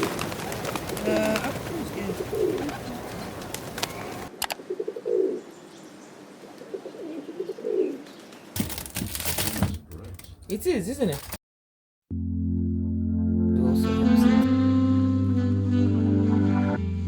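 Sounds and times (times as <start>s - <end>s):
pigeons cooing: 0.0s - 5.5s, 6.5s - 8.1s
background noise: 0.0s - 11.4s.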